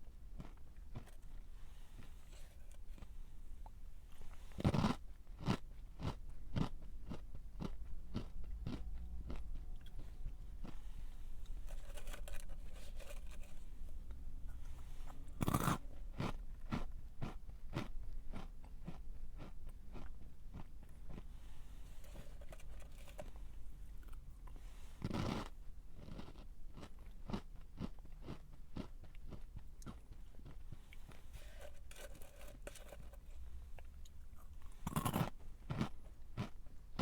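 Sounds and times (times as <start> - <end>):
crunchy chewing: 0.4 - 23.4, 24.0 - 37.0
crunchy snack bites: 4.6 - 9.5, 34.4 - 36.5.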